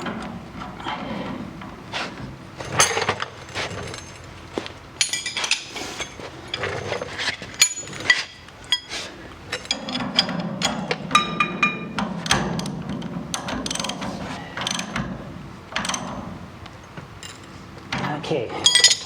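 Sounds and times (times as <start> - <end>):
small metal hardware clinking: 2.6 - 8.9, 16.8 - 19.0.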